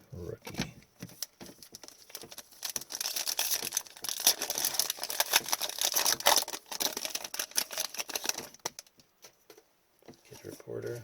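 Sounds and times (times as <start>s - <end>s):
card packaging crinkling: 1.1s - 9.0s.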